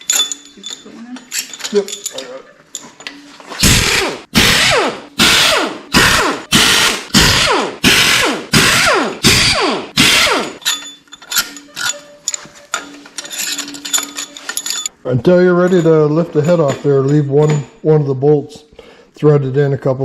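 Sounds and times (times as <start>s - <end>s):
bolts clicking and rattling: 0.0s - 3.2s, 9.3s - 17.8s.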